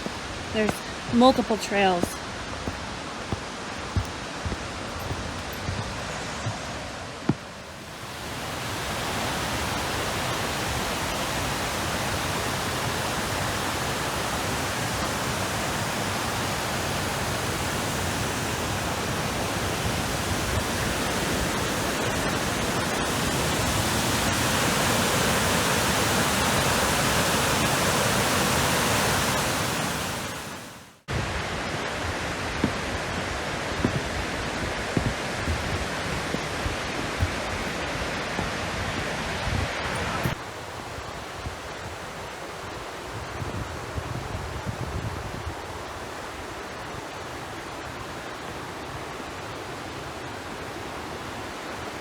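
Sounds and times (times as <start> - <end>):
waterfall roaring: 0.0 - 40.4.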